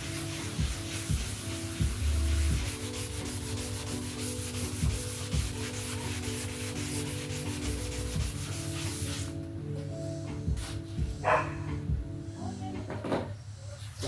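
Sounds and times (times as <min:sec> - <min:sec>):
sandpaper rubbing boat hull: 0:00.0 - 0:09.4.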